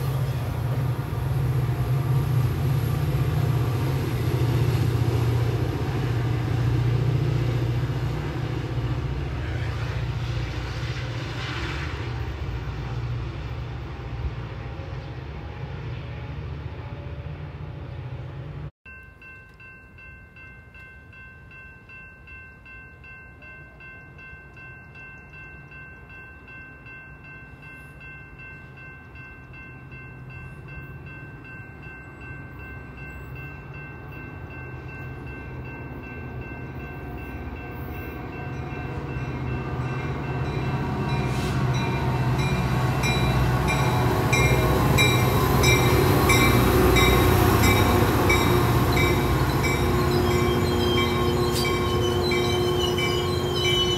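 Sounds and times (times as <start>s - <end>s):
diesel train engine rumble: 0.0s - 53.9s
bell ringing: 41.8s - 53.9s.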